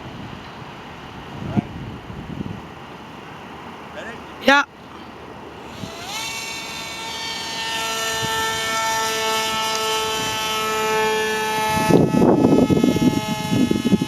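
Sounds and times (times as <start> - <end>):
model plane motor whining: 5.4 - 14.0.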